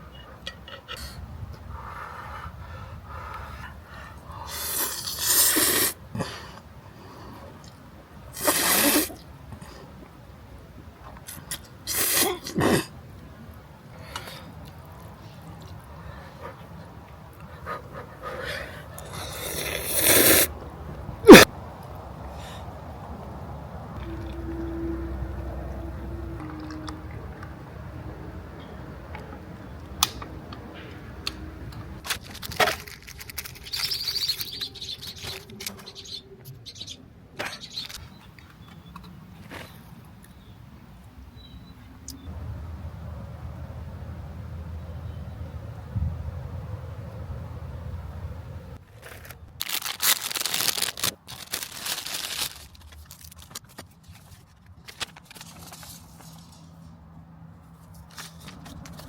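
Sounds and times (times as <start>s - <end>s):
crinkling handling noise: 32.0s - 36.0s, 48.8s - 57.0s, 57.6s - 59.0s
bird chirping trill: 33.6s - 39.0s.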